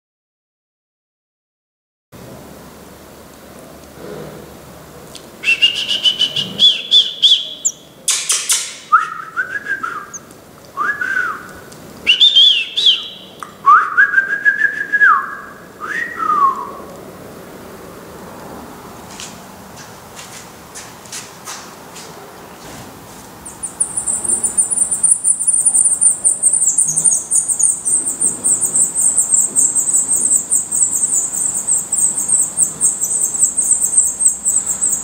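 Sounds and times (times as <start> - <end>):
bird whistling song: 5.4 - 7.9, 8.9 - 16.8, 23.4 - 35.0
harsh bird call: 5.4 - 8.0, 12.1 - 13.4, 23.4 - 35.0
crackling bird rattle: 23.4 - 35.0.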